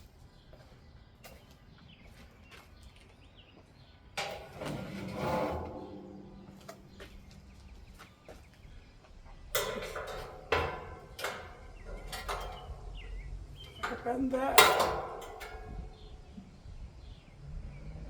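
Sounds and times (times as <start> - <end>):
hand tool knocking on metal: 9.6 - 16.2.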